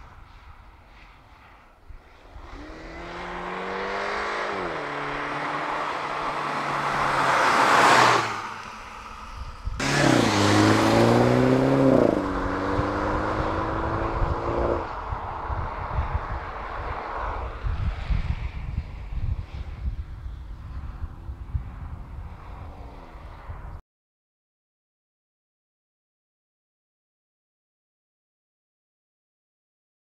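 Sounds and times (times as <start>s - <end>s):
car accelerating hard: 2.1s - 18.0s.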